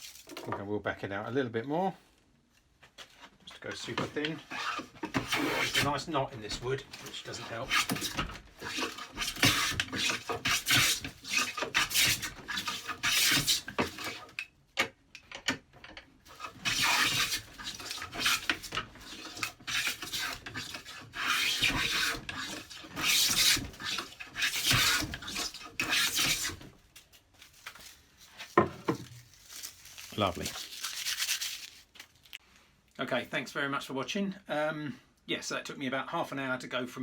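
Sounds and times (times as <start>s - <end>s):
hand plane shaving wood: 3.8s - 14.4s, 16.3s - 26.7s.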